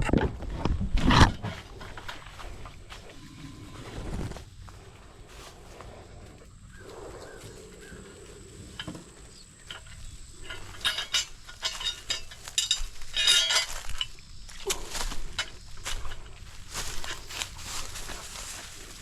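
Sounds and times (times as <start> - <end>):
hard objects clinking: 9.6 - 14.2.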